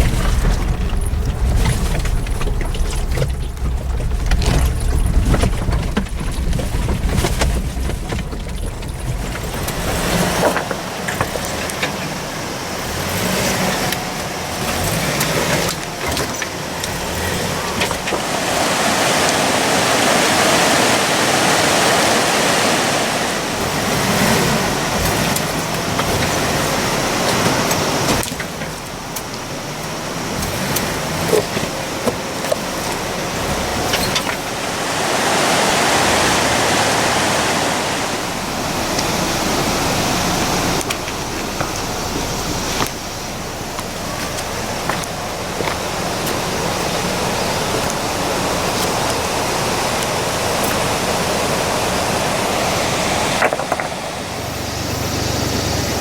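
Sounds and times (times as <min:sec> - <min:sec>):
car low rumble: 0:00.0 - 0:56.0
steady rushing noise: 0:18.0 - 0:25.7, 0:32.2 - 0:42.9.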